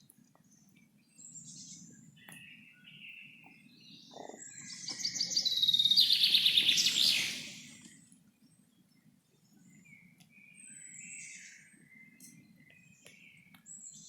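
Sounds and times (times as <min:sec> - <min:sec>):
bird chirps: 0:00.5 - 0:08.1
bird trilling rapidly: 0:04.6 - 0:07.7.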